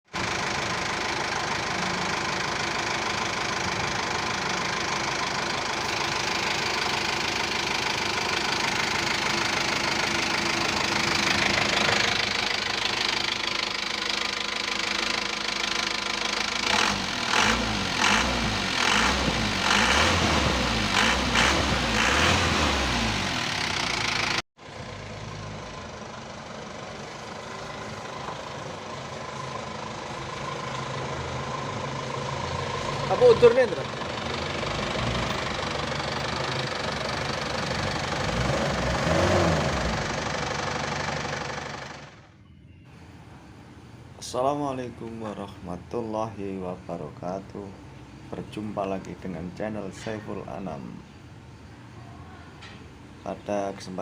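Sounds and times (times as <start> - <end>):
diesel engine revving: 0.2 - 42.4.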